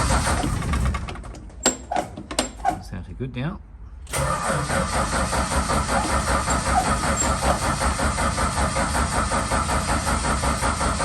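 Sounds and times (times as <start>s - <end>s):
car engine running roughly: 0.0s - 1.2s, 4.2s - 11.0s.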